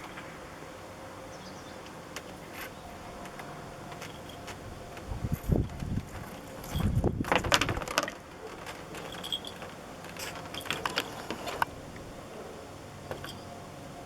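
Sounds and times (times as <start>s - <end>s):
cat gnawing on branch: 1.8s - 11.7s
wood cracking and snapping: 1.8s - 11.7s.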